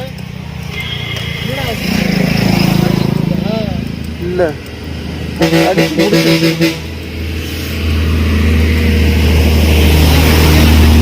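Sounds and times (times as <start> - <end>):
vehicle engine approaching: 0.0 - 11.0
vehicle horn blasts: 5.4 - 7.0.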